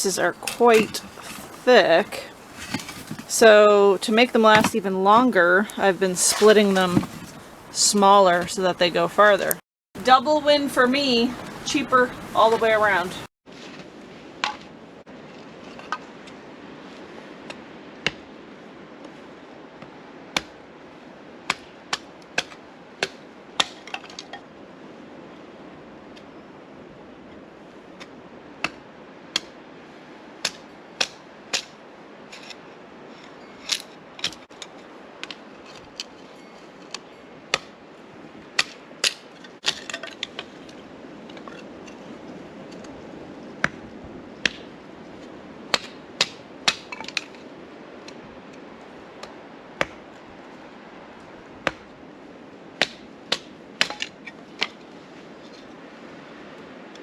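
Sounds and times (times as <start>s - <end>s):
blade splitting wood: 0.2s - 10.2s.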